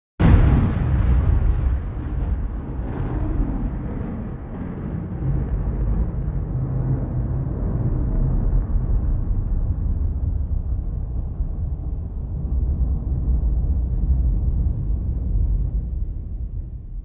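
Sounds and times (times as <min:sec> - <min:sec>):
thunder rumbling: 0:00.2 - 0:17.0.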